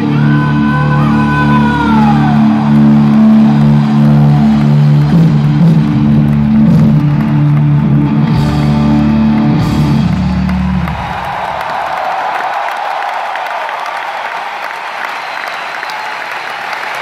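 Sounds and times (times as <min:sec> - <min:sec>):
electric guitars: 0:00.0 - 0:11.3
drums: 0:00.0 - 0:11.9.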